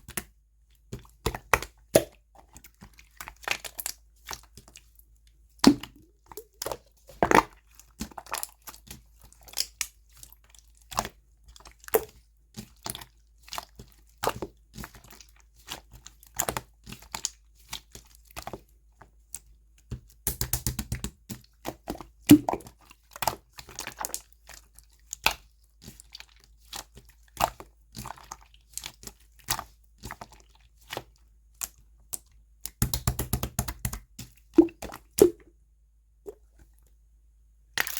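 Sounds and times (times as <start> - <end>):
slime crackling pops: 5.6 - 7.5.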